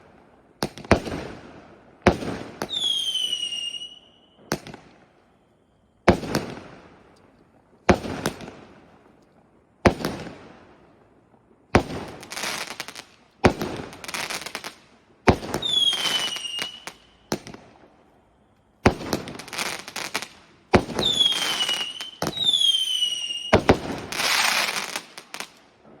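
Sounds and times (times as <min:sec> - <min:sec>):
falling firework whistle: 0:02.6 - 0:05.8, 0:15.4 - 0:17.6, 0:20.8 - 0:25.5
firework bangs: 0:18.8 - 0:26.0.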